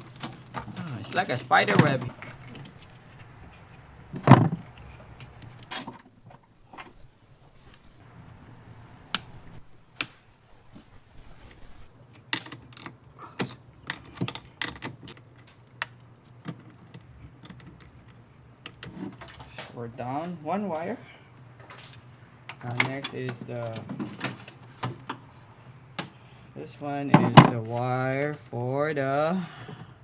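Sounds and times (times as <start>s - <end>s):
wires and plastic rustling: 0.0s - 11.9s
dull thump: 1.7s - 11.9s
sharp clicks: 6.7s - 11.9s.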